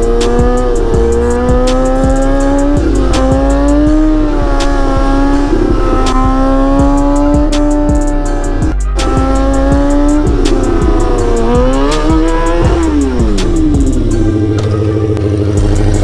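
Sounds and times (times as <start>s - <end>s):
motorcycle engine revving: 0.0s - 16.0s
music with ticking beat: 0.0s - 16.0s.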